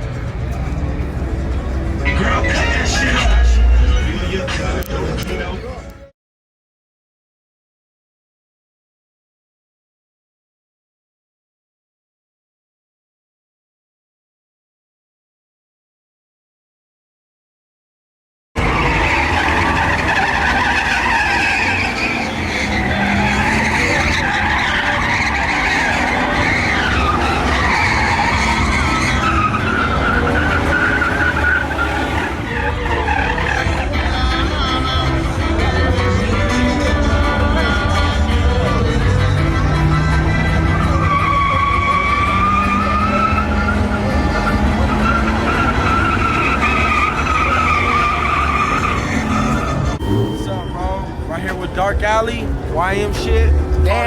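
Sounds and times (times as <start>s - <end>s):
tyres squealing: 18.6s - 34.5s, 39.5s - 51.8s
truck engine running: 18.6s - 54.0s.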